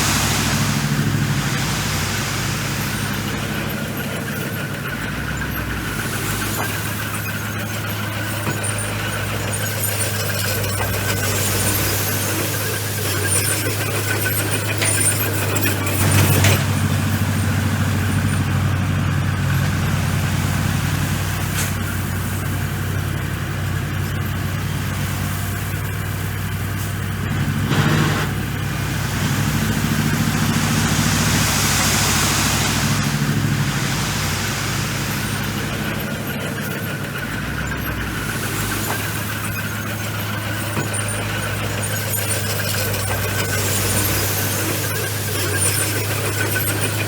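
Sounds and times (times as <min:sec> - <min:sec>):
noisy swells: 0:00.0 - 0:07.2, 0:27.7 - 0:37.3
bulldozer diesel engine: 0:00.0 - 0:47.0.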